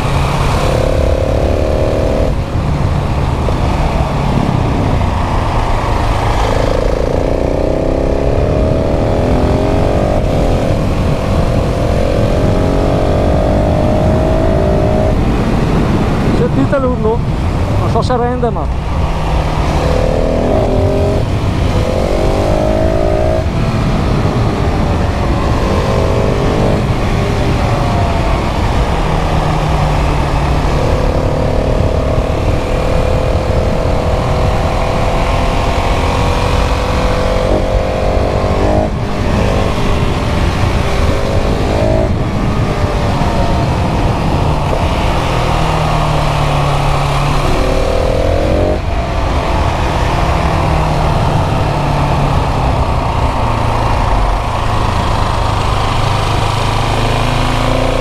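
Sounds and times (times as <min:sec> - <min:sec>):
motorcycle engine revving through gears: 0:00.0 - 0:58.0.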